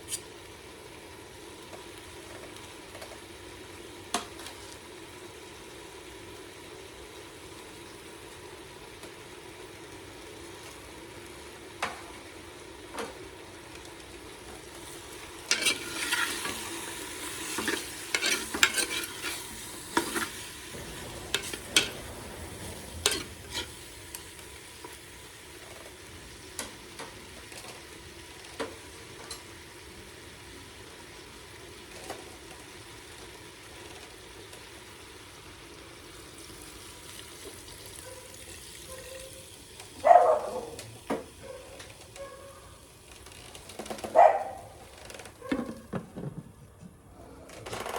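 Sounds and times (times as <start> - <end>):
pork sizzling in a pan: 0.0 - 45.3
clattering scrapes against pan: 15.5 - 23.9.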